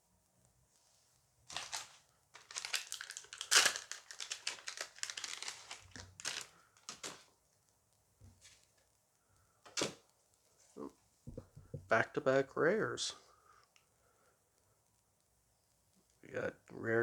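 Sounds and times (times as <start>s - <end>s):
wrapper crinkling and tearing: 1.5s - 7.3s.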